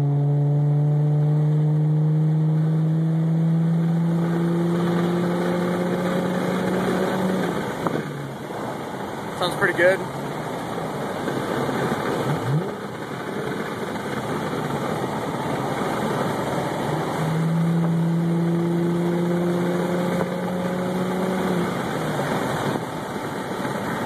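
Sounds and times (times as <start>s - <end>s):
car engine and exhaust hum: 0.0s - 24.0s.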